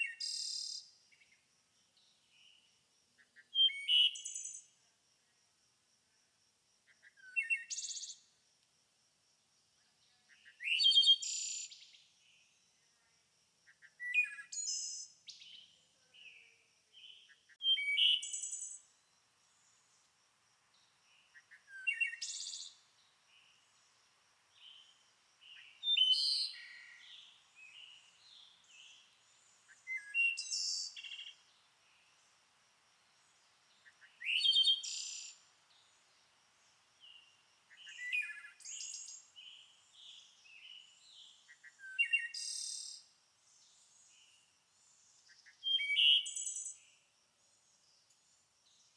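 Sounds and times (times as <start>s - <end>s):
songbirds singing: 0.0s - 4.8s, 6.9s - 8.4s, 9.8s - 12.7s, 13.7s - 48.9s.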